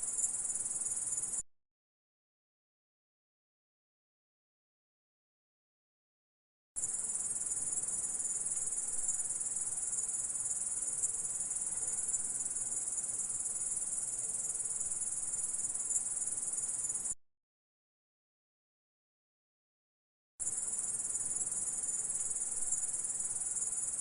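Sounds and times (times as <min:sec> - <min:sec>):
insect high-pitched trill: 0:00.0 - 0:01.4, 0:06.8 - 0:17.2, 0:20.4 - 0:24.0.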